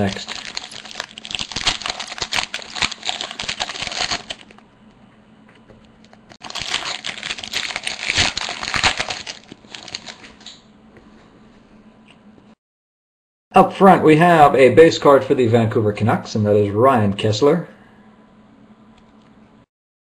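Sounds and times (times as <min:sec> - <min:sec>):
wrapper tearing and crinkling: 0:00.0 - 0:04.6, 0:06.3 - 0:10.3.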